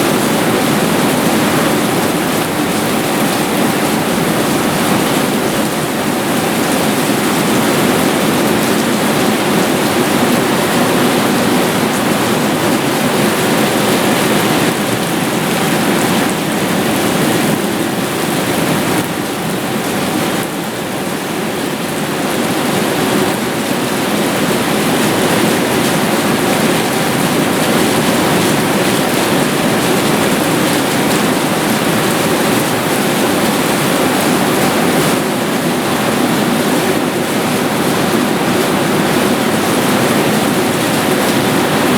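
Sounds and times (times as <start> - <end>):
heavy rain downpour: 0.0 - 41.9.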